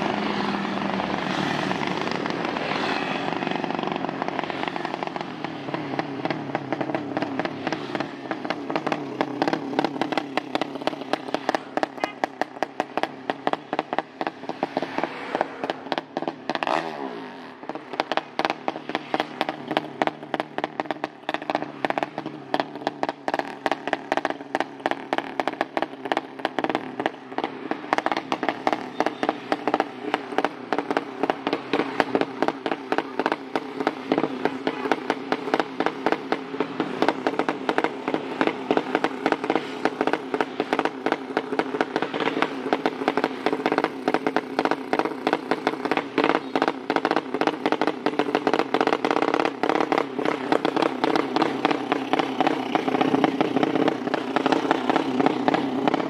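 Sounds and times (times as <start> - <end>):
motorcycle engine idling: 0.0 - 14.8, 17.5 - 56.0
exhaust crackling pops: 17.5 - 56.0.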